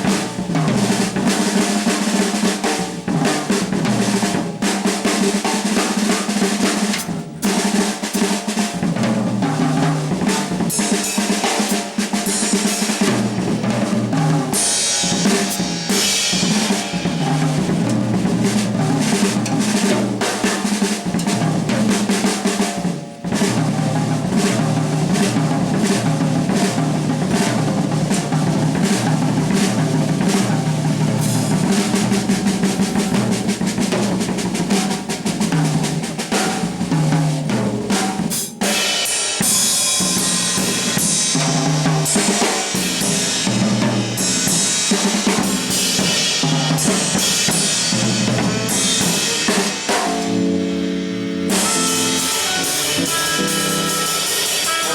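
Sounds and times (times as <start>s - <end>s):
jazz drum kit playing: 0.0s - 54.9s
cymbal washes: 10.3s - 21.3s, 38.7s - 54.9s.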